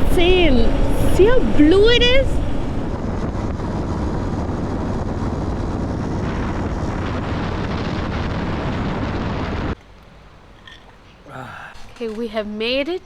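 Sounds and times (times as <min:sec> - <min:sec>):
motorcycle running: 0:00.0 - 0:09.8
wind rush on microphone: 0:00.0 - 0:09.8.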